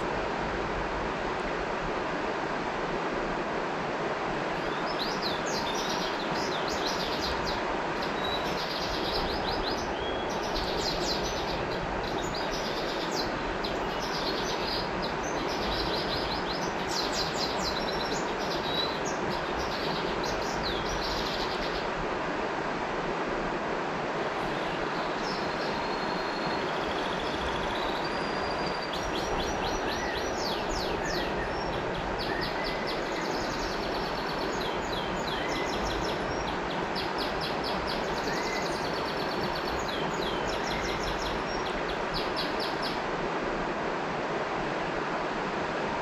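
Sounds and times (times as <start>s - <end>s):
river water flowing: 0.0s - 46.0s
bird chirping: 4.6s - 21.8s, 24.5s - 43.0s.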